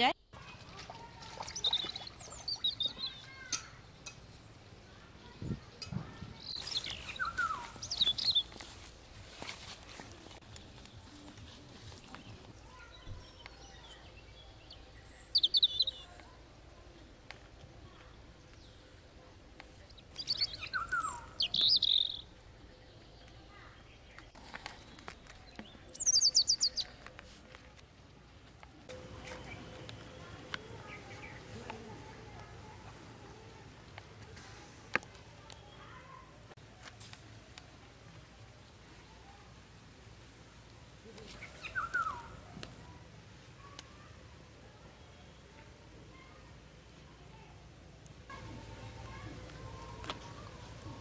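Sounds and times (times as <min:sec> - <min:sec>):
birds chirping: 0:00.0 - 0:27.6, 0:28.3 - 0:34.0, 0:40.2 - 0:43.0.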